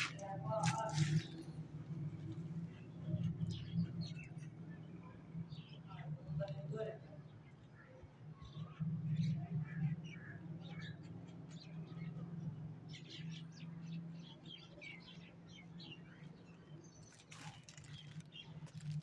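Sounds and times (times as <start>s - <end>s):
small birds chirping: 7.3s - 19.0s.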